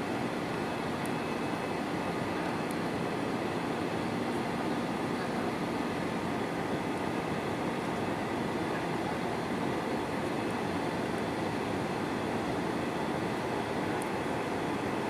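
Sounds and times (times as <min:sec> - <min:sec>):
airplane cabin engine noise: 0:00.0 - 0:15.0.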